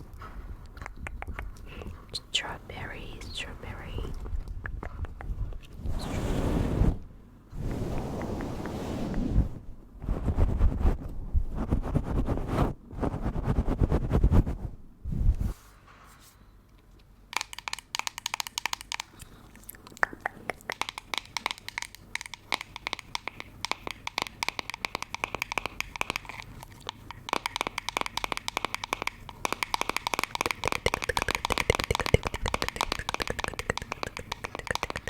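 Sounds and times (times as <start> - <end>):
rapid crackling and clicking: 17.3 - 35.0.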